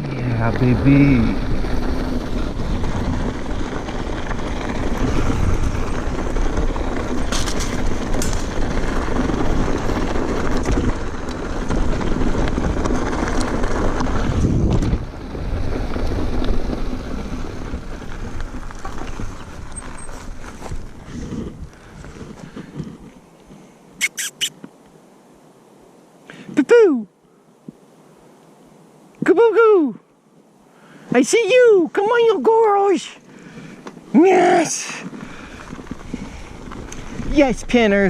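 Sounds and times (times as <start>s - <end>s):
wind buffeting microphone: 0.0s - 23.1s, 33.6s - 38.0s
bike tyre and trail noise: 0.0s - 26.6s, 30.2s - 38.0s
sharp bike rattles: 0.6s - 21.5s.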